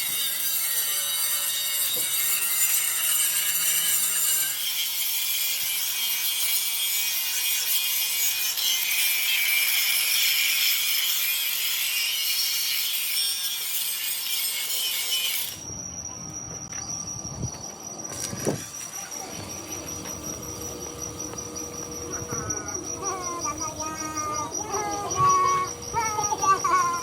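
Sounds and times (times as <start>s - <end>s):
tool rasping on steel plate: 0.2s - 15.6s
thin high tone: 15.0s - 27.0s.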